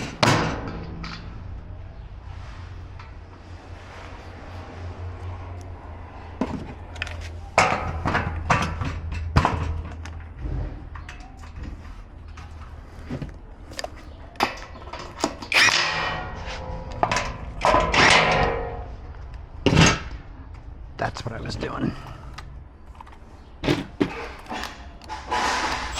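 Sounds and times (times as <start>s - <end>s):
grill parts knocking and clattering: 15.5s - 18.8s.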